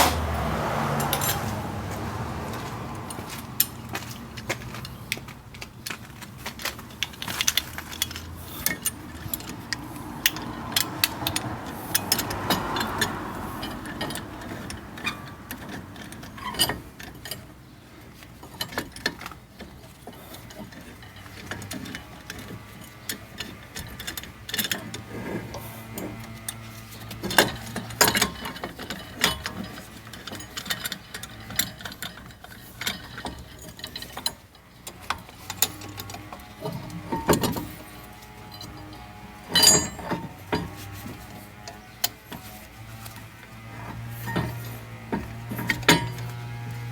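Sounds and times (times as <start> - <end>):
hand tool clicking and ratcheting: 1.0 - 1.5, 6.5 - 17.5.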